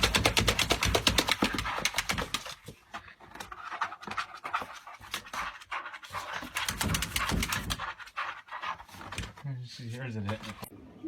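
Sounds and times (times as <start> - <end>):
dog panting: 1.2 - 9.2.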